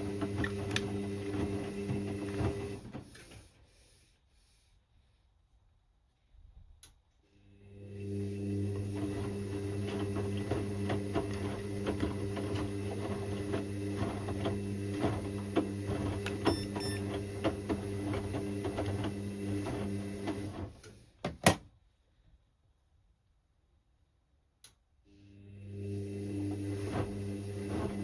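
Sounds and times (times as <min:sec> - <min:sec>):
washing machine motor hum: 0:00.0 - 0:03.4, 0:07.4 - 0:20.9, 0:25.2 - 0:28.0.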